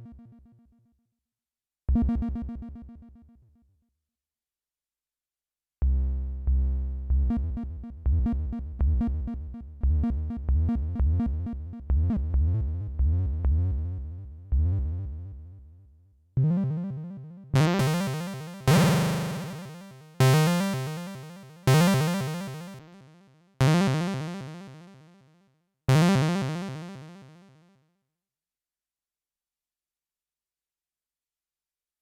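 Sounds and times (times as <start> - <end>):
chiptune synth notes: 17.6 - 25.1, 25.9 - 27.6.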